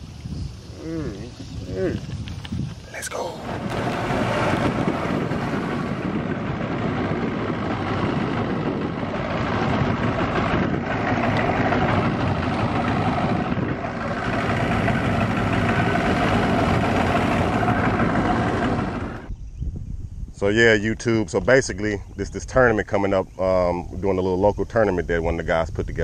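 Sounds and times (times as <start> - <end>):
outboard motor running: 3.4 - 19.3.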